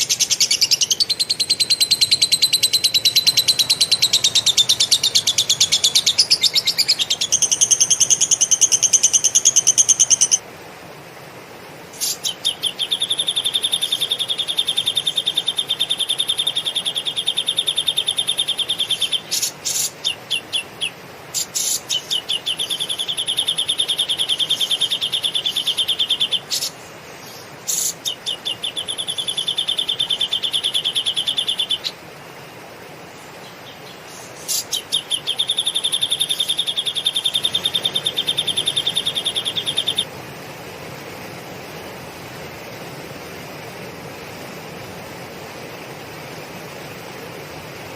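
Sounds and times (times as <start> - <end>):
songbird trilling: 0.0 - 10.4, 12.0 - 32.0, 33.4 - 40.1.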